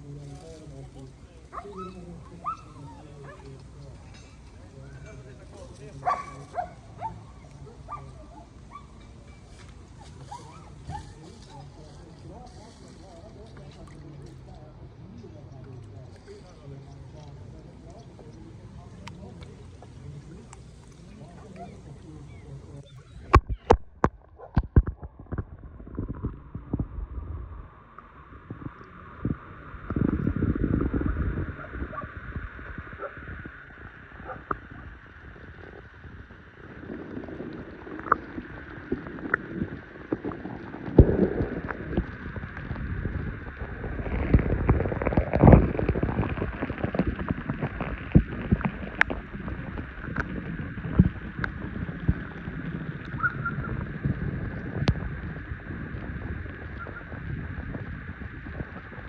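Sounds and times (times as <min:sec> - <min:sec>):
wind buffeting microphone: 0:00.0 - 0:59.0
waves washing onto beach: 0:27.8 - 0:59.0.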